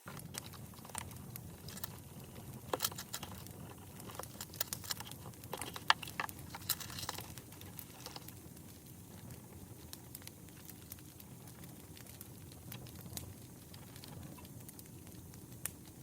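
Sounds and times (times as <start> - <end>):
campfire pops and snaps: 0.0 - 16.0
rush of burning fire: 0.0 - 16.0.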